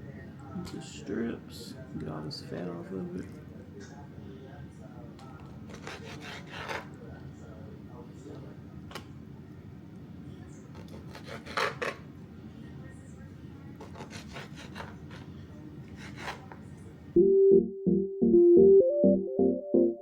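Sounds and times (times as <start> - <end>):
knife slicing raw chicken on board: 10.8 - 12.0, 13.8 - 15.3, 15.9 - 16.6
synthesizer keyboard music: 17.2 - 20.0.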